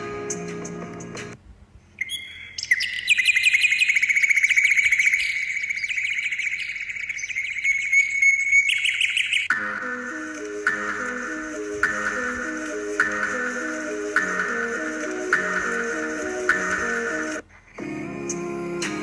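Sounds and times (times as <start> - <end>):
background music: 0.0 - 1.4, 9.5 - 19.0
bird singing fast trill: 2.0 - 9.5.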